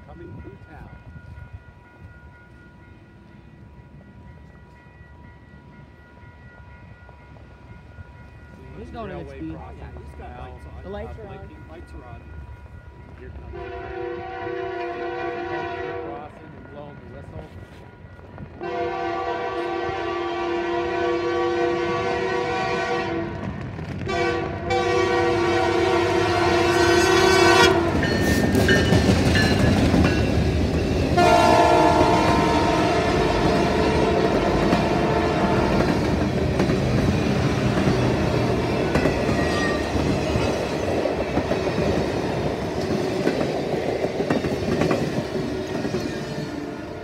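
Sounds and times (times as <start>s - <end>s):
diesel locomotive passing: 0.0s - 47.0s
train cars rumbling past: 0.0s - 47.0s
locomotive air horn: 13.6s - 16.1s, 18.6s - 23.5s, 24.1s - 28.1s, 31.2s - 35.8s.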